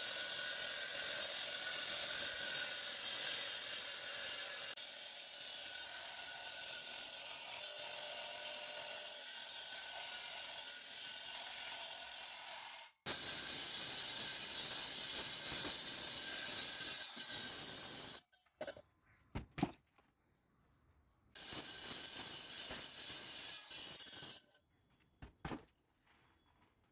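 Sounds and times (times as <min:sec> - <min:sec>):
saw blade grinding concrete: 0:00.0 - 0:18.2, 0:21.4 - 0:24.6.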